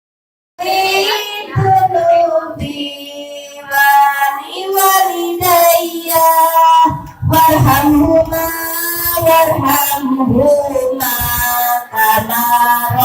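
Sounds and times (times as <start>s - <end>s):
child singing: 0.6s - 13.0s
low beats: 4.7s - 13.0s.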